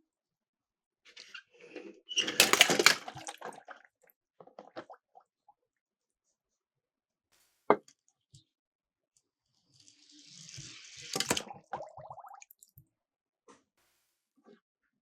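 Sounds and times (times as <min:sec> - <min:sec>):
toy cars splashing into water: 0:02.2 - 0:03.8, 0:10.3 - 0:11.8.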